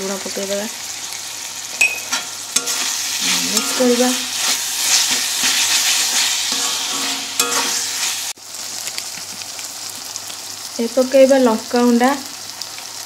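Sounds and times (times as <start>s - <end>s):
masala sizzling: 0.0s - 13.0s
metal spatula scraping: 1.8s - 8.3s.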